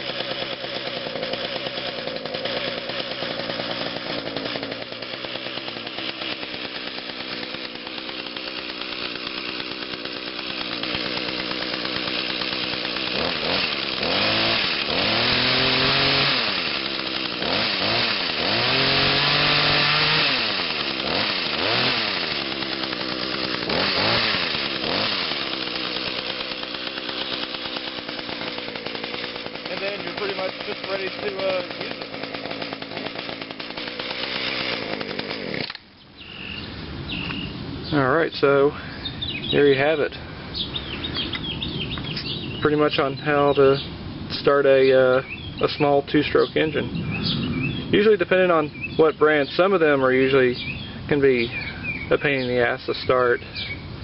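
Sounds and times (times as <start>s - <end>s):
two-stroke engine idling and revving: 0.0s - 35.8s.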